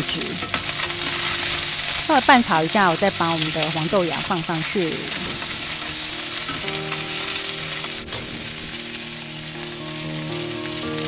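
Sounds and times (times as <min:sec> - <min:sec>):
clams sizzling in a wok: 0:00.0 - 0:11.0
soft background music: 0:00.0 - 0:11.0.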